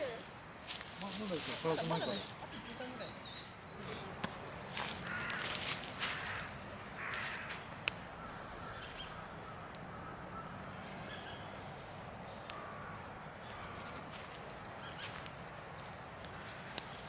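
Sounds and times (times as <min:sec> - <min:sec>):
bird cawing: 0:04.7 - 0:11.6, 0:12.2 - 0:15.3.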